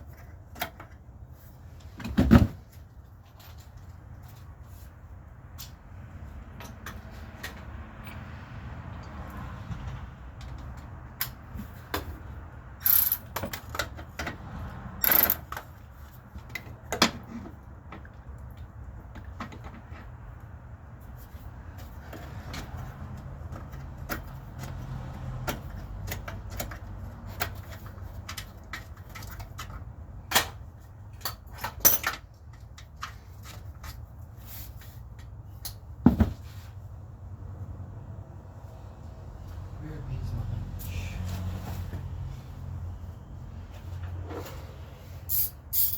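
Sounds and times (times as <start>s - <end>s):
metallic tool clinks and knocks: 12.8s - 13.6s, 15.0s - 15.5s, 45.3s - 45.9s.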